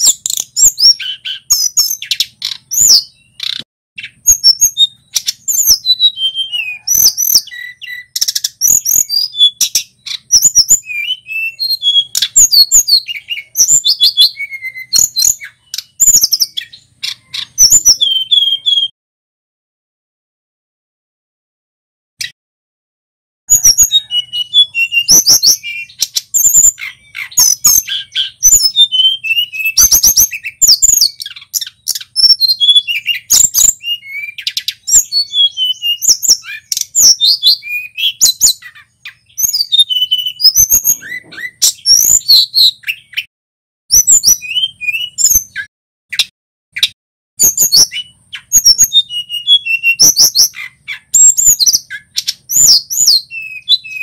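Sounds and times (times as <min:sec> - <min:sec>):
bird singing high whistles: 0:00.0 - 0:18.9, 0:23.5 - 0:43.3, 0:43.9 - 0:54.0.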